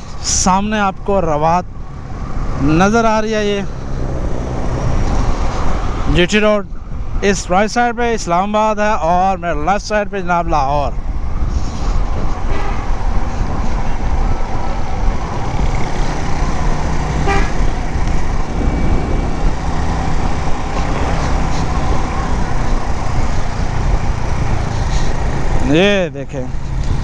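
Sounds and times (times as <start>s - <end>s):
road traffic: 0.0s - 27.0s
wind rush on microphone: 10.9s - 25.9s, 26.5s - 27.0s
motorcycle engine running: 15.4s - 25.6s
vehicle horns tooting: 17.2s - 17.7s.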